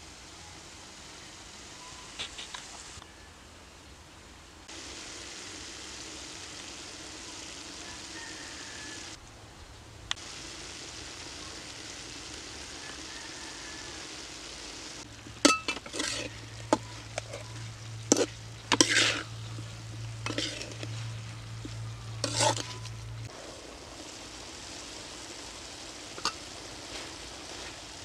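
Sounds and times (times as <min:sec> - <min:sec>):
food sizzling in a wok: 0:00.0 - 0:03.0, 0:04.6 - 0:09.2, 0:10.1 - 0:28.0
metal spatula scraping wok: 0:15.2 - 0:23.3.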